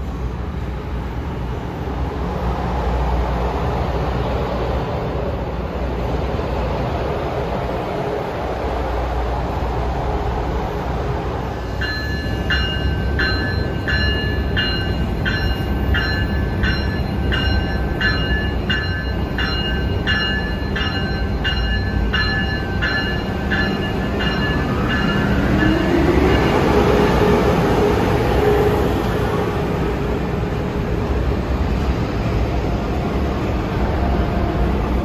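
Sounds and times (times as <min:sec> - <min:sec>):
rising train whine: 0:00.0 - 0:35.0
train rumble: 0:00.0 - 0:35.0
train warning bell ringing: 0:11.5 - 0:27.4.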